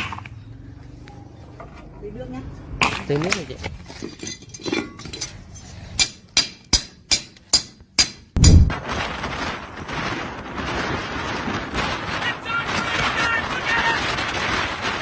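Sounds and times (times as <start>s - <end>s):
heavy thud: 8.4s - 8.8s
steady rushing noise: 8.4s - 8.8s.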